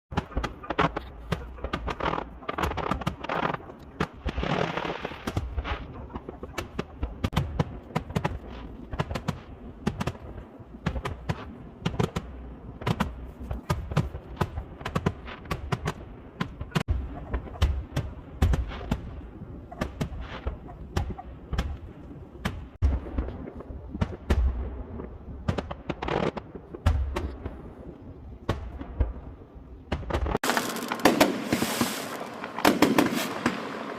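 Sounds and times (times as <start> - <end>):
fireworks bangs and crackles: 0.1 - 33.9
hissing firework burst: 30.4 - 33.9.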